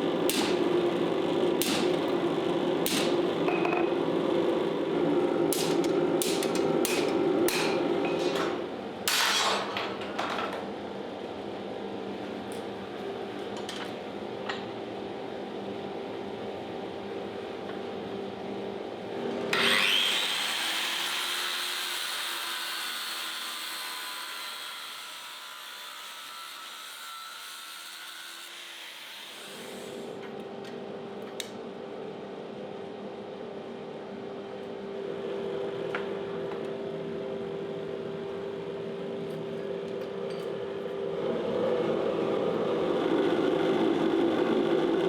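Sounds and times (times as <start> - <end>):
hammer striking steel: 0.3 - 0.7, 1.6 - 2.0, 2.9 - 3.9, 5.5 - 10.0.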